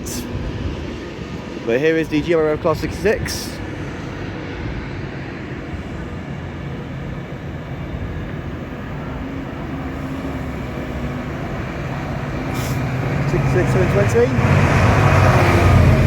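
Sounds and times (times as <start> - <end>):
diesel locomotive engine drone: 0.0 - 16.0
train wheels rumbling on rails: 0.0 - 16.0.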